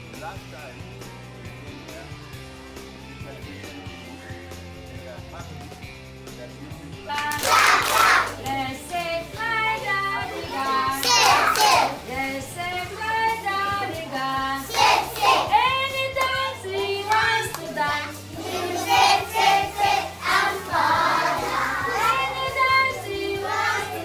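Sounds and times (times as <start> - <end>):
backing music track: 0.0 - 24.0
children singing in unison: 9.6 - 12.4, 13.0 - 15.6, 16.2 - 24.0.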